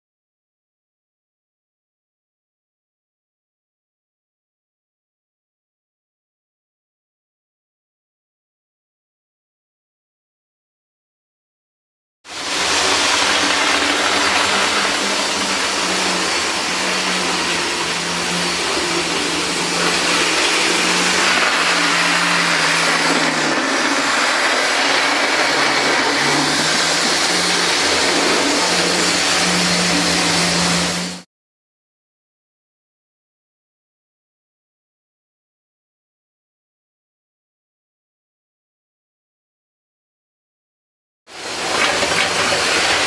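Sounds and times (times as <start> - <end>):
diesel locomotive engine running: 12.3 - 31.2, 41.3 - 43.0.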